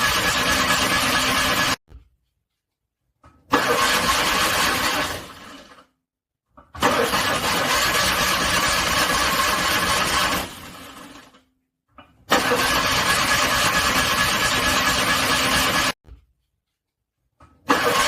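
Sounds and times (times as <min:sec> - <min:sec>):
car engine cranking: 0:03.5 - 0:05.6, 0:06.8 - 0:10.8, 0:12.3 - 0:15.9, 0:17.7 - 0:18.0.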